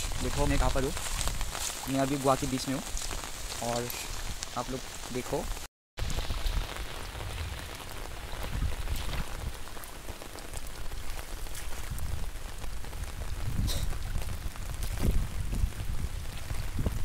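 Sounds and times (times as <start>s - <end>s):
heavy rain on floodwater: 0.0s - 17.0s.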